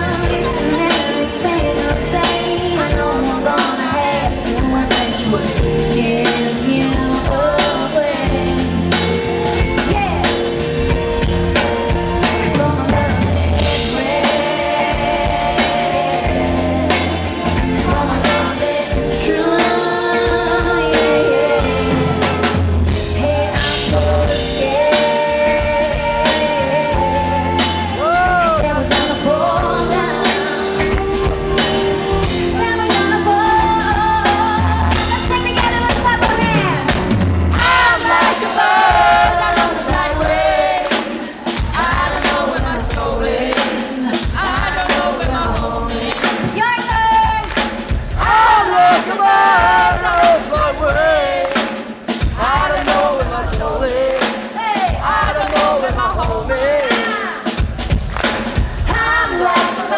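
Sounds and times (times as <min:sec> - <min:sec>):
person singing: 0:00.0 - 0:10.9, 0:11.6 - 0:47.4
band playing pop music: 0:00.0 - 0:59.9.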